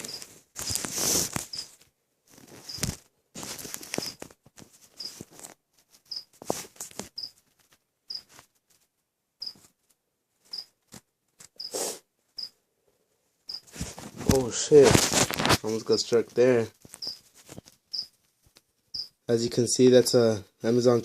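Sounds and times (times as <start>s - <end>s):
plastic bag rustling and crinkling: 0.0s - 8.9s, 13.7s - 18.4s
faint high chirp: 6.1s - 6.3s, 7.2s - 7.4s, 8.1s - 8.3s, 9.4s - 9.6s, 10.5s - 10.7s, 12.4s - 12.6s, 13.5s - 13.7s, 17.0s - 17.2s, 17.9s - 18.1s, 18.9s - 19.2s.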